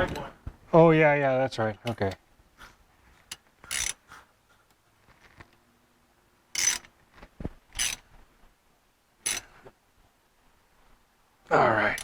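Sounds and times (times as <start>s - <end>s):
ratchet wrench clicking: 3.3s - 4.0s, 6.6s - 6.9s, 7.8s - 8.0s, 9.2s - 9.5s.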